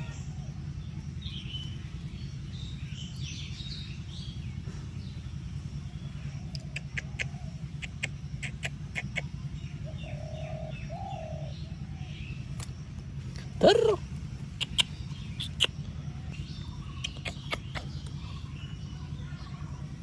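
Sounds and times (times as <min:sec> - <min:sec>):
small birds chirping: 0:00.0 - 0:20.0
steady low rumble: 0:00.0 - 0:20.0
pigeon cooing: 0:06.6 - 0:09.4, 0:13.4 - 0:15.9, 0:16.8 - 0:18.2
sharp clicks: 0:14.6 - 0:15.8.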